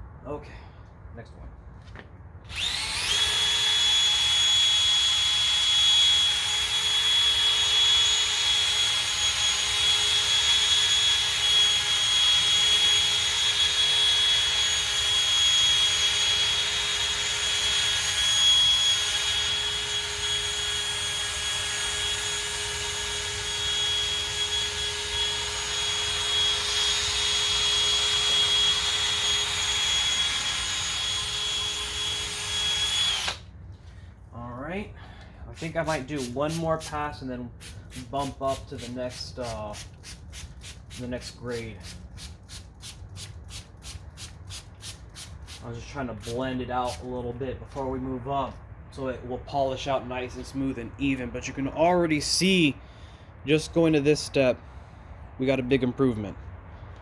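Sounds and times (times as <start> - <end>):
electric drill sanding whine: 2.5 - 33.4.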